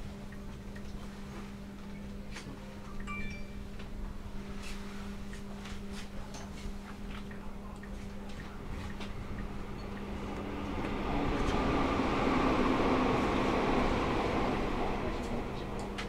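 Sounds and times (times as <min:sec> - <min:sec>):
train electrical hum: 0:00.0 - 0:16.0
train running noise: 0:08.3 - 0:16.0.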